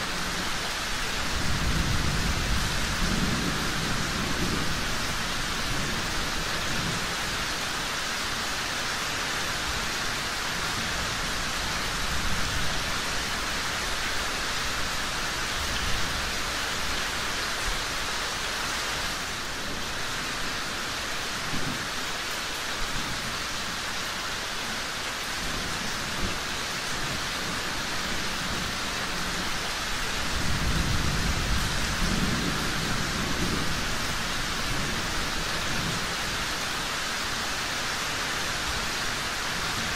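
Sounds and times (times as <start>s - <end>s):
heavy rain hissing: 0.0s - 39.9s
low rolling thunder: 1.2s - 7.2s, 30.2s - 36.1s.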